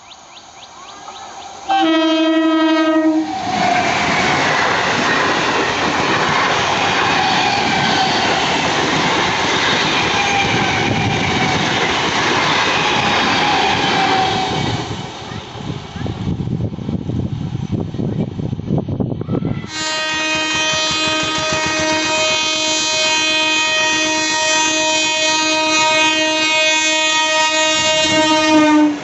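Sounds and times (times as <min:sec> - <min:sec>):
train wheels rumbling on rails: 0:00.1 - 0:29.0
train horn: 0:01.7 - 0:03.9, 0:19.6 - 0:29.0.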